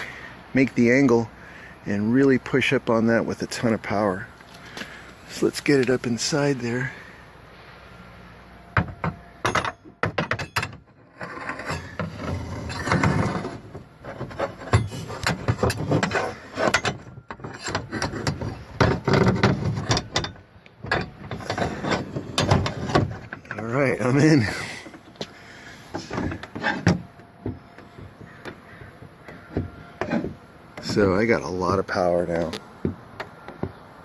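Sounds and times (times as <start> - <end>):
metal rod scraping inside panel: 10.3 - 23.6, 25.9 - 31.0.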